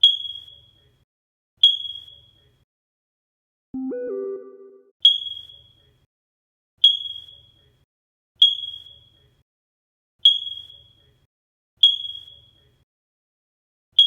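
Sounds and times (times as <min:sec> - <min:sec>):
high electronic ding: 0:03.8 - 0:04.9
rising electronic tone: 0:03.8 - 0:04.9.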